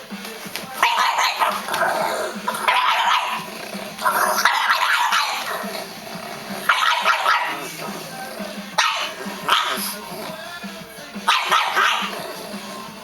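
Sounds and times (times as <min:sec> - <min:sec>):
dog growling and barking: 0:00.6 - 0:10.5, 0:11.2 - 0:13.0.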